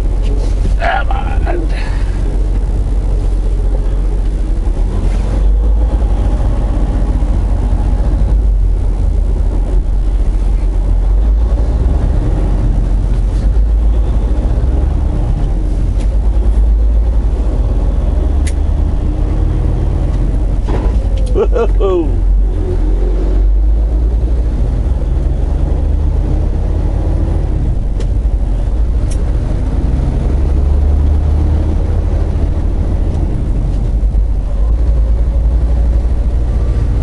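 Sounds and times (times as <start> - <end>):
truck diesel engine rumbling: 0.0 - 37.0.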